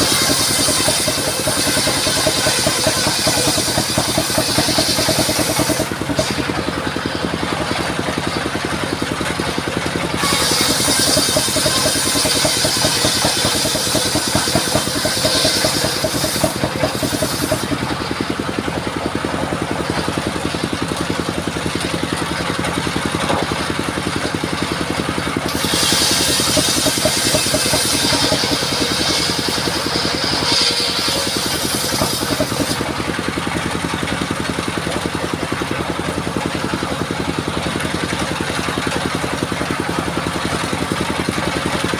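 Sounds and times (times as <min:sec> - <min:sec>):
saw blade cutting log with hiss: 0:00.0 - 0:08.5, 0:09.8 - 0:20.2, 0:24.5 - 0:34.0
sawmill engine running: 0:00.0 - 0:41.9.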